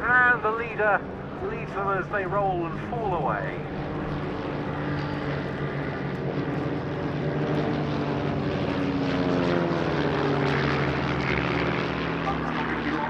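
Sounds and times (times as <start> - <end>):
propeller aircraft droning: 0.0 - 13.0.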